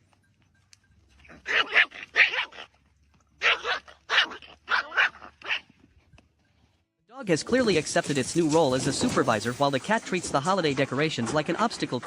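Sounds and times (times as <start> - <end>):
dog barking: 1.4 - 2.6, 3.4 - 5.7.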